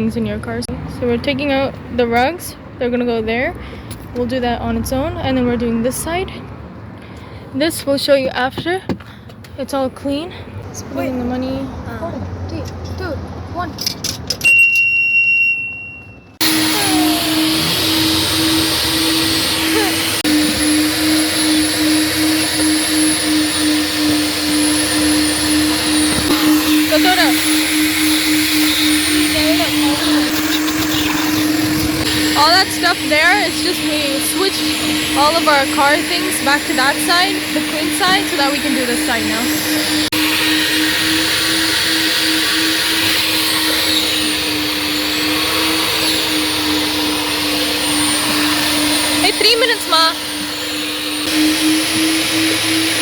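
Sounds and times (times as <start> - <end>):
vacuum hose sucking air: 16.4 - 53.0
vacuum motor hum: 16.4 - 53.0.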